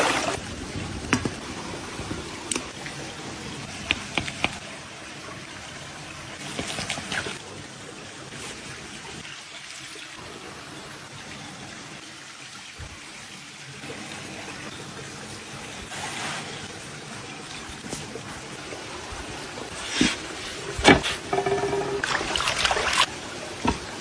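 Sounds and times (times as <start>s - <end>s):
water trickling: 0.0s - 24.0s.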